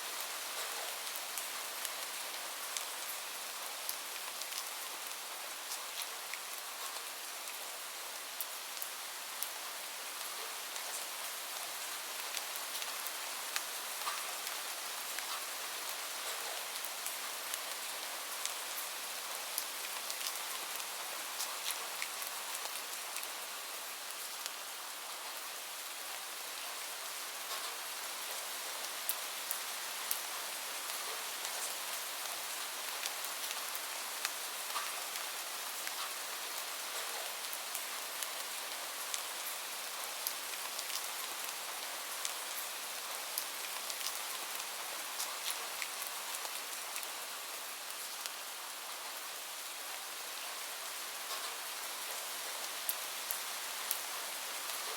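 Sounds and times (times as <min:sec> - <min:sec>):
gentle rain: 0:00.0 - 0:54.9.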